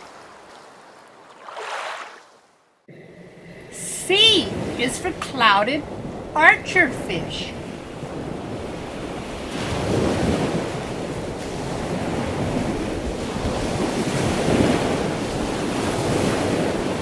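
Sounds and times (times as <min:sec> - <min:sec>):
rushing water: 0:00.0 - 0:02.5.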